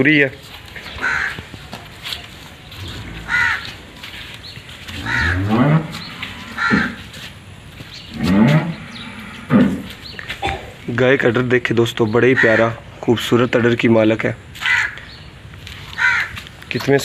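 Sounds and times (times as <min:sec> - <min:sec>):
bird calling: 0:00.8 - 0:01.5, 0:02.6 - 0:10.9, 0:12.0 - 0:12.8, 0:14.6 - 0:16.5.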